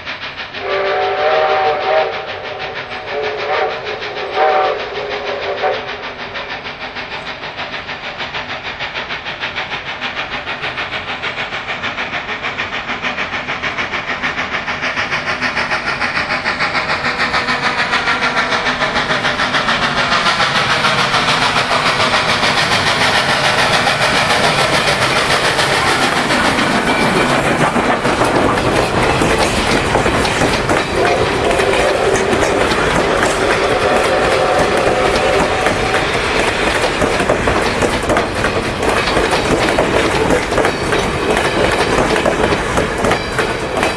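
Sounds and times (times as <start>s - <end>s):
steam locomotive rhythmic clatter: 0.0s - 43.9s.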